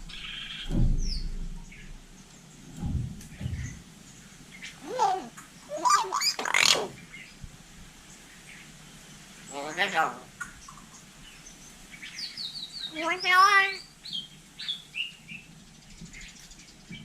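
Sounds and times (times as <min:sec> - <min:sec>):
low thuds: 0:00.0 - 0:04.0
myna bird cries sweeping in pitch: 0:04.8 - 0:07.1.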